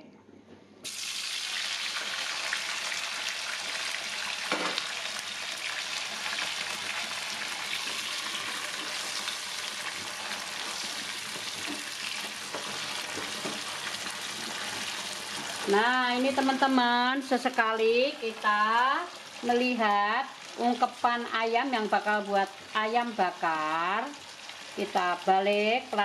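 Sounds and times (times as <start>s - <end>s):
vegetables sizzling in hot oil: 0.8s - 26.0s
knock on pan: 4.5s - 4.9s
spatula stirring pan: 5.8s - 16.7s.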